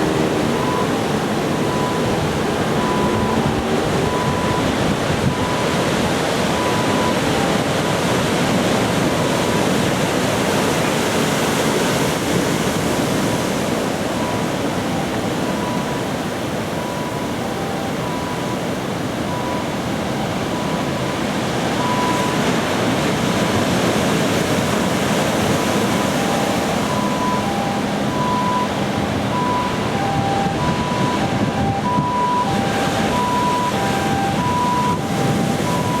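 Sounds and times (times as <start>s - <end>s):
two-note electronic tone: 0.0s - 7.7s, 26.0s - 36.0s
wind on microphone: 0.0s - 16.1s, 19.3s - 36.0s.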